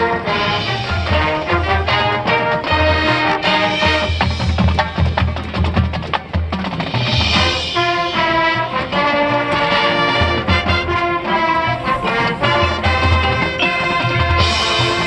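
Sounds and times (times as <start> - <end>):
brass chords: 0.0 - 5.0, 7.3 - 15.0
marching band drum line: 0.0 - 15.0.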